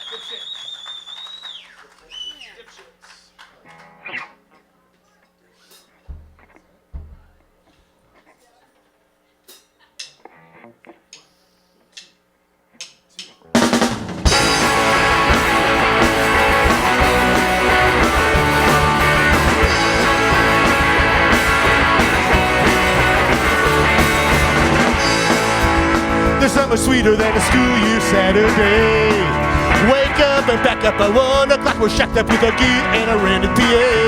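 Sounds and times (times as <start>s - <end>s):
live rock band playing: 13.5s - 34.0s.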